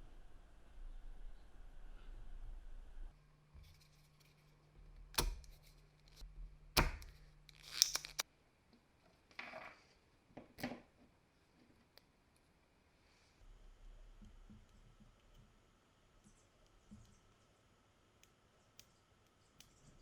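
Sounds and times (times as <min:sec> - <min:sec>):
sharp clicks and knocks: 0:06.8 - 0:08.2.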